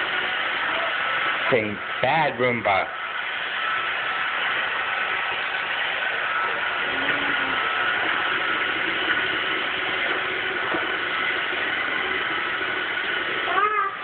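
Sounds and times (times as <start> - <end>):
robot vacuum whirring: 3.2 - 14.0.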